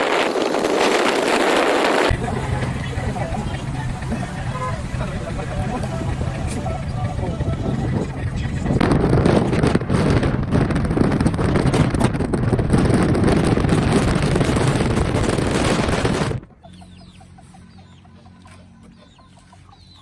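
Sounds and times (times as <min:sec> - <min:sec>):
wind and road noise: 0:00.0 - 0:20.0
faint bird chirps: 0:16.6 - 0:20.0.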